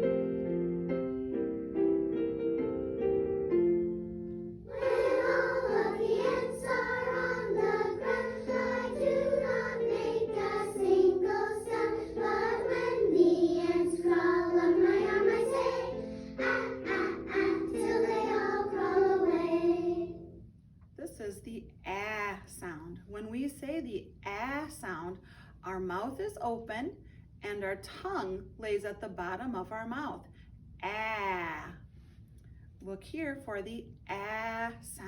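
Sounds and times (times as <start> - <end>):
keyboard: 0.0 - 20.3
children's choir singing: 4.6 - 20.3.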